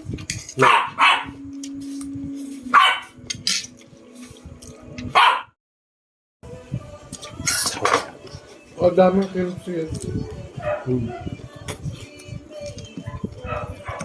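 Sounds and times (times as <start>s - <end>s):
dog barking: 0.6s - 1.4s, 2.7s - 3.2s, 5.1s - 5.6s, 10.6s - 11.3s, 13.1s - 14.0s.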